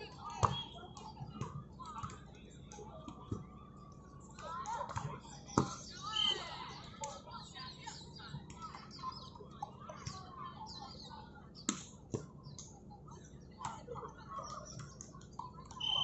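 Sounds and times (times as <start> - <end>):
distant shouts: 0.0 - 11.6, 15.7 - 16.0.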